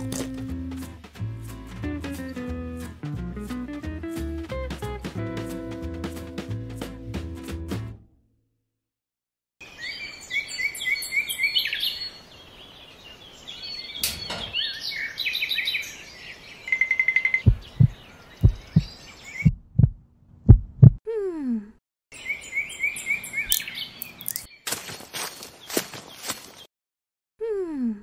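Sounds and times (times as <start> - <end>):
bird trill: 9.6 - 12.2, 13.5 - 19.5, 22.2 - 24.6
small birds chirping: 9.6 - 19.9, 22.1 - 26.7
loud low thumps: 17.5 - 21.0.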